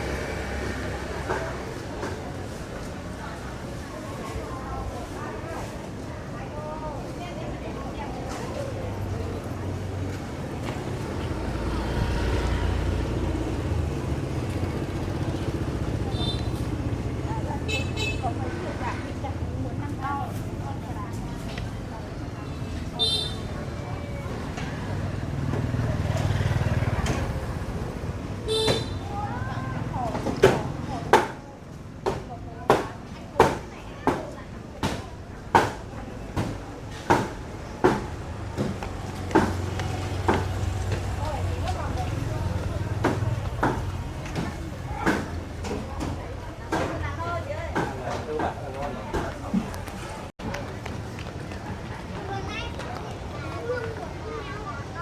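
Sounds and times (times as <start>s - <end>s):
steady street hum: 0.0s - 55.0s.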